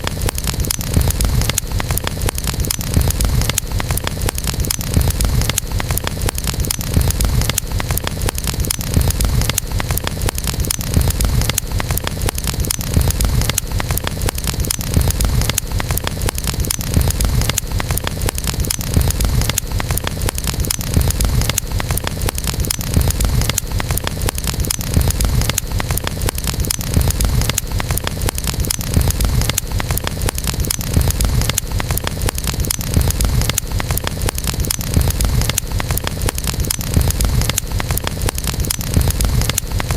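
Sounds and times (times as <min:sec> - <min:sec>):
campfire flames rumbling: 0:00.0 - 0:39.9
fire crackling: 0:00.0 - 0:39.9
fire popping: 0:00.0 - 0:39.9.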